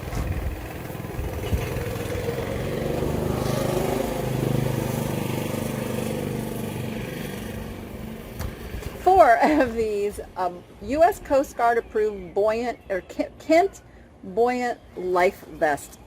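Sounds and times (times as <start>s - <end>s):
small engine bike passing: 0.0s - 8.8s.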